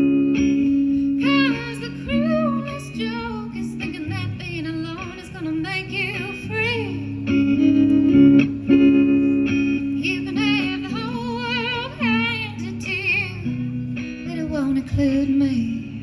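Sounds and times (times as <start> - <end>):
guitar chords: 0.0 - 16.0
woman singing with vibrato: 0.9 - 7.6, 9.7 - 16.0.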